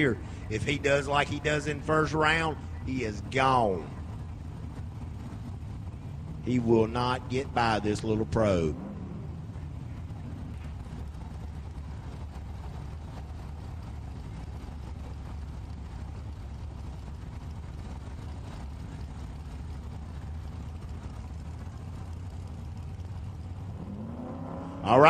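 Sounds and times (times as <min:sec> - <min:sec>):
race car engines idling: 0:00.0 - 0:25.0.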